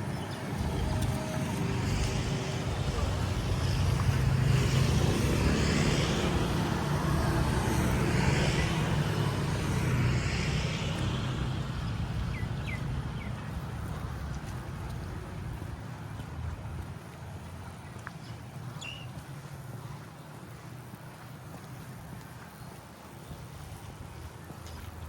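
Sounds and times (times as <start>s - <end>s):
vehicle engine running: 0.0s - 15.6s
traffic noise: 0.0s - 25.0s.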